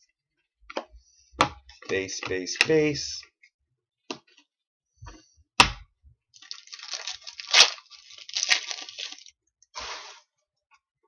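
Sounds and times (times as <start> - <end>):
crinkly wrapper rustling: 6.4 - 9.4.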